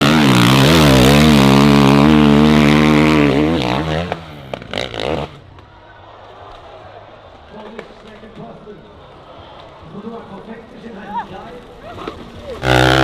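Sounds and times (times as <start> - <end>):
dirt bike engine revving: 0.0 - 5.5, 12.6 - 13.0.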